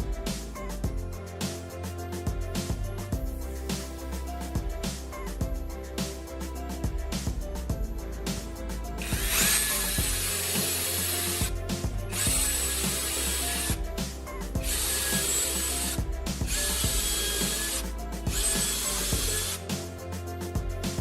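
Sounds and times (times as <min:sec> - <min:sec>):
background music: 0:00.0 - 0:21.0
power tool cutting wood: 0:09.0 - 0:13.8, 0:14.6 - 0:19.6.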